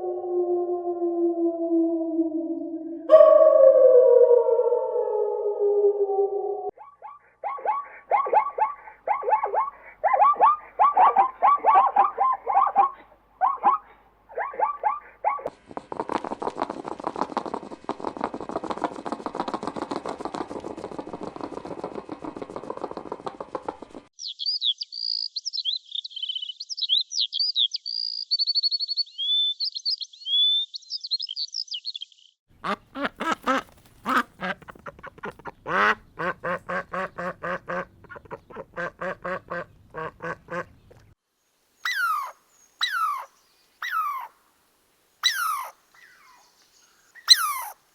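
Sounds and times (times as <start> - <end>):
high gliding bird chirps: 0.0 - 6.7, 24.2 - 32.4, 41.8 - 44.3, 45.2 - 47.8
ducks quacking: 32.6 - 40.8.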